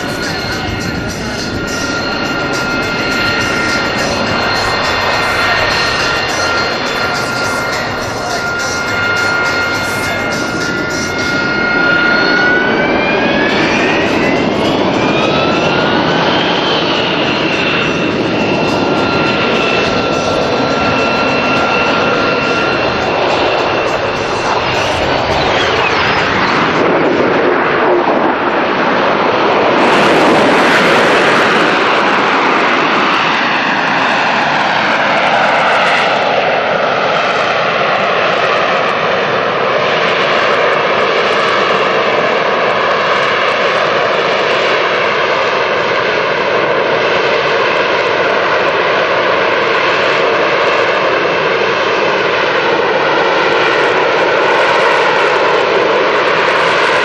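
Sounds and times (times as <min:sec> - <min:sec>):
jet engine whine and rush: 0:00.0 - 0:57.0.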